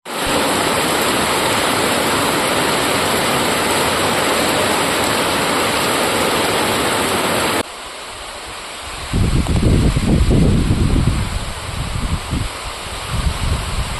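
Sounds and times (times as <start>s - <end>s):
rain falling: 0.0s - 8.8s.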